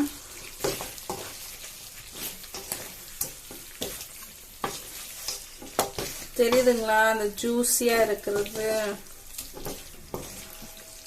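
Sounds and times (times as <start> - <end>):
chicken wings sizzling in sauce: 0.0 - 11.0
utensil knocking and scraping pan: 4.6 - 7.0, 8.2 - 11.0.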